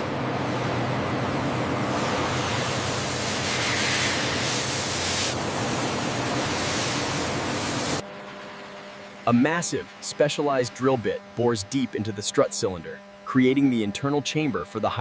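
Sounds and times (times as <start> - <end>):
industrial machinery hissing: 0.0 - 8.0.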